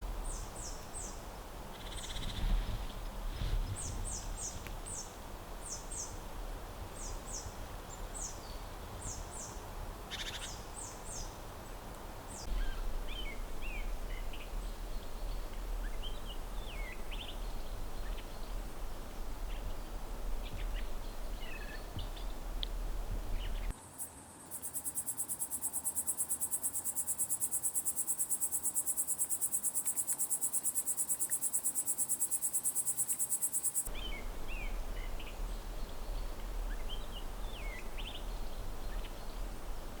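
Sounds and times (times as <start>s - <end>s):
low rumble of wind: 0.0s - 23.8s, 33.9s - 40.0s
crickets chirring: 0.2s - 2.6s, 10.1s - 40.0s.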